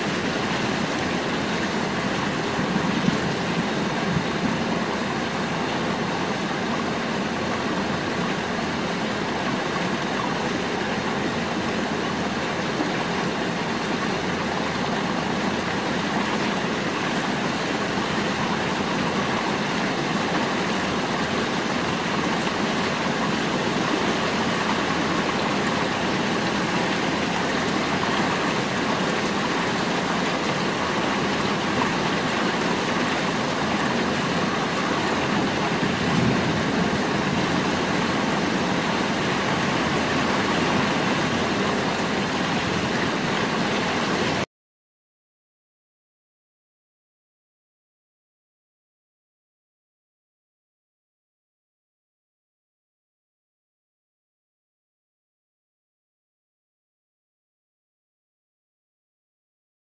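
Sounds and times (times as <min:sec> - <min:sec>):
rain falling on rooftops: 0:00.0 - 0:44.5.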